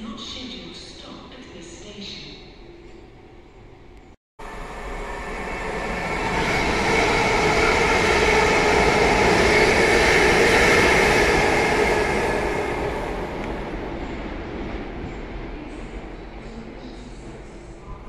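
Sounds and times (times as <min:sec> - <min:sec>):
electric train whine: 0:02.5 - 0:18.0
train wheels rushing: 0:04.7 - 0:17.0.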